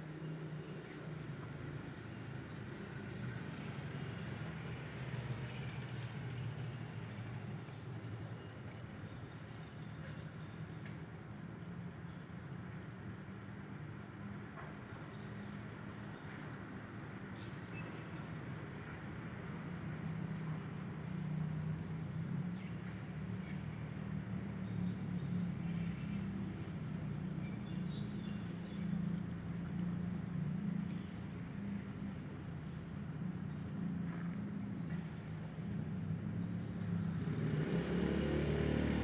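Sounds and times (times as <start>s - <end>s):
birds chirping: 23.9s - 31.4s.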